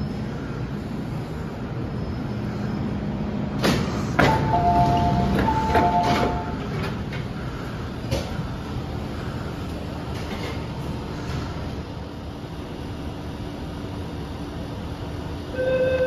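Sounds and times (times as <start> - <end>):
train hum: 0.0 - 16.0
two-note door chime: 4.4 - 6.6.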